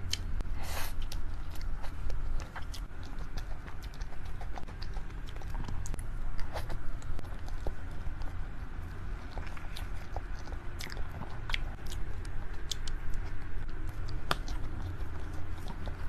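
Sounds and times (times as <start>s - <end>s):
person chewing soft food: 0.0s - 16.0s
steady low hum: 0.0s - 16.0s.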